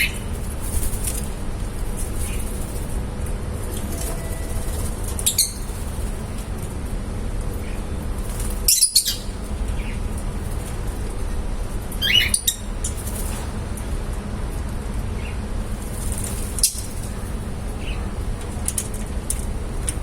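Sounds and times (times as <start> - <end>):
lovebirds chirping and squawking: 0.0 - 1.3, 2.0 - 3.0, 3.8 - 6.5, 7.5 - 13.5, 16.1 - 18.2
low hum: 0.0 - 20.0.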